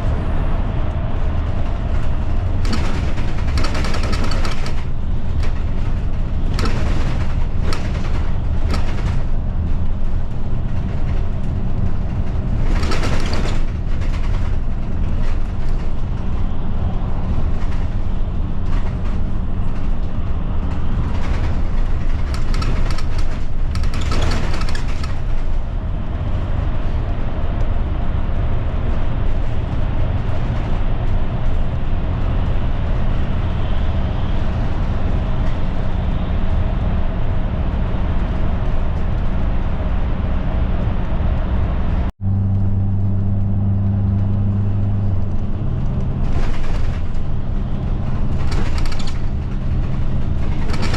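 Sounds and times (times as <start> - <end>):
bus engine and tyre rumble: 0.0 - 50.9
bus rattling: 0.0 - 50.9.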